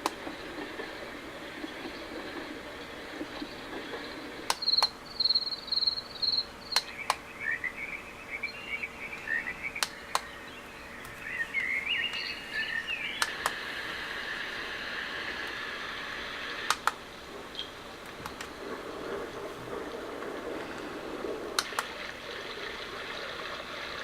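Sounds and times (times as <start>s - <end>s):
recorded birdsong chirps: 0.0s - 24.0s
steady hiss: 0.0s - 24.0s
sharp double clicks: 4.4s - 7.2s, 9.2s - 10.3s, 13.1s - 13.6s, 16.6s - 17.0s, 21.6s - 22.0s.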